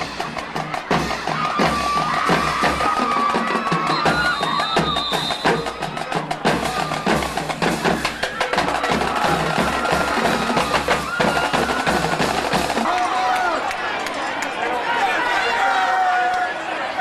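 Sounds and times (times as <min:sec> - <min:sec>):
school band playing: 0:00.0 - 0:13.0
rapid drum strokes: 0:05.1 - 0:12.9.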